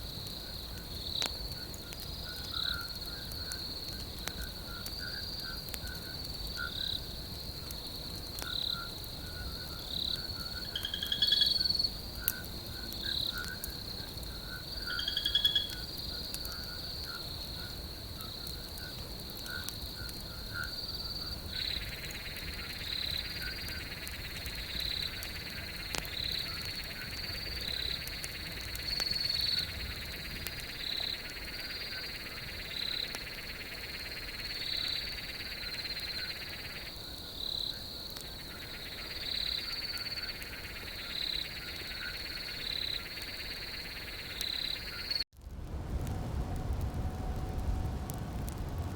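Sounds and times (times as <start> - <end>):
high insect trill: 8.5 - 17.7
frog calling: 10.4 - 13.7, 14.5 - 15.8.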